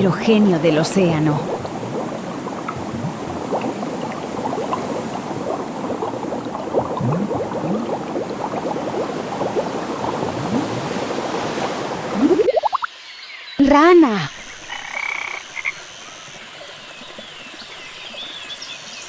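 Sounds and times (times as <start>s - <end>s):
larger bubbles blipping: 0.0s - 12.9s
underwater bubbling: 0.0s - 12.9s.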